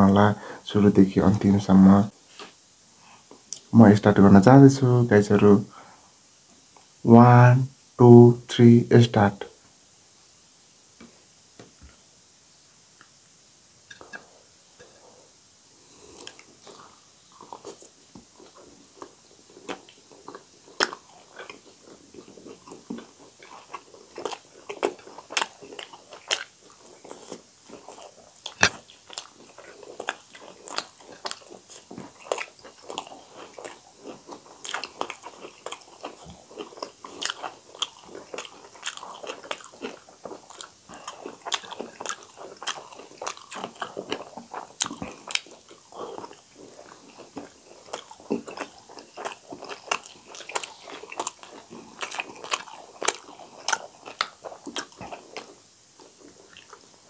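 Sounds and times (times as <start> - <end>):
people chewing food: 15.8 - 57.0.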